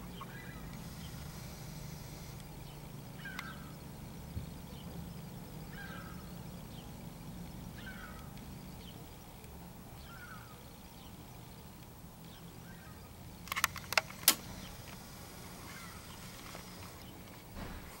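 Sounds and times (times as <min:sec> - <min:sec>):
faint short bird calls: 0:00.0 - 0:03.9, 0:05.7 - 0:06.4, 0:07.7 - 0:08.4, 0:10.0 - 0:10.6, 0:15.5 - 0:17.8
sharp clicks: 0:03.2 - 0:03.6, 0:08.0 - 0:08.6, 0:13.4 - 0:15.1.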